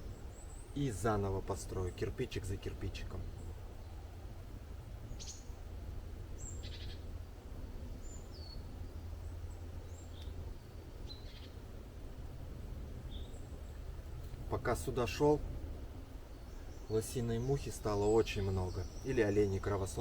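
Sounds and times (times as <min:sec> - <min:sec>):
birds chirping: 0:00.0 - 0:20.0
steady low rumble: 0:00.0 - 0:20.0.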